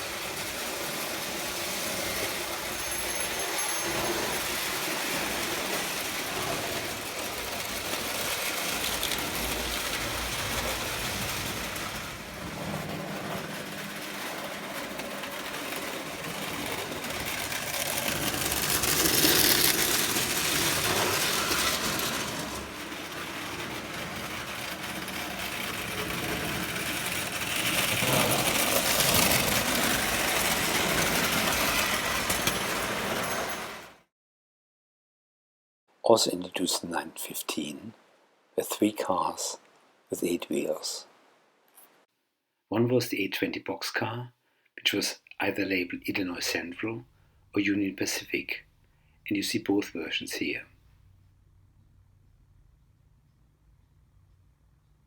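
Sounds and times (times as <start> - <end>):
toy train motor whirring: 0.0 - 34.0
toy train wheels clattering on rails: 0.0 - 34.0.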